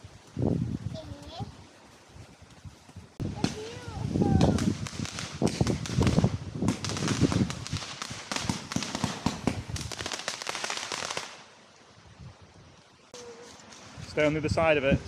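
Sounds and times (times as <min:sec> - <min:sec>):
firework crackling: 0:03.2 - 0:11.6.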